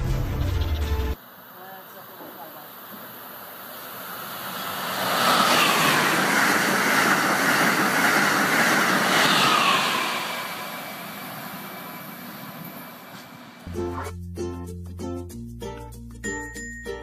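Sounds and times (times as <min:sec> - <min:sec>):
high-speed train rushing past: 0:01.2 - 0:13.7.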